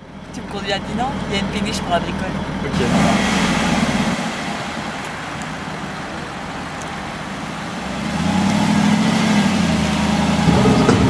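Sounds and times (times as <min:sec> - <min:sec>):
car engine driving off: 0:00.0 - 0:11.0.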